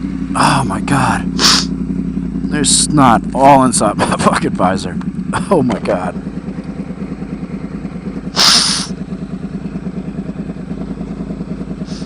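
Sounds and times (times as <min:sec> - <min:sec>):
motorcycle engine running: 0:00.0 - 0:12.0
loud hiss: 0:01.4 - 0:01.7, 0:08.4 - 0:08.9.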